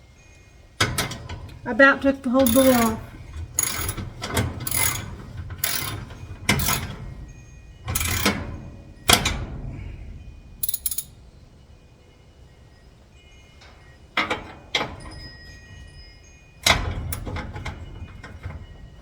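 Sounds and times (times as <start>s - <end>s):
ratchet wrench clicking: 2.4s - 3.0s, 3.6s - 4.0s, 4.6s - 6.0s, 6.6s - 6.9s, 8.0s - 8.3s, 10.6s - 11.1s.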